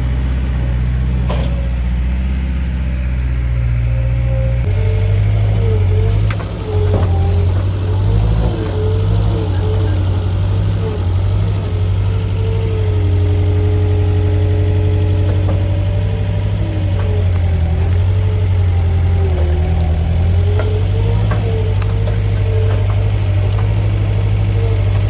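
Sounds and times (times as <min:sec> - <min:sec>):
skid steer engine running: 0:00.0 - 0:25.0.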